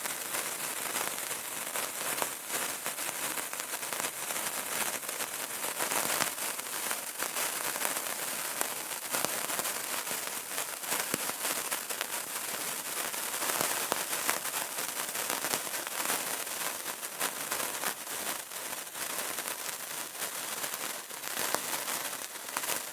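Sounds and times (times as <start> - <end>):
candle flame crackling: 0.0 - 22.9.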